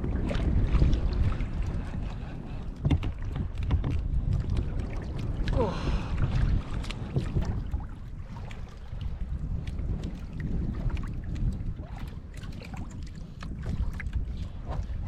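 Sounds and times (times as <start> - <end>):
water sloshing against kayak: 0.0 - 15.0
wind buffeting microphone: 0.0 - 15.0
light clicks and knocks: 2.8 - 4.0.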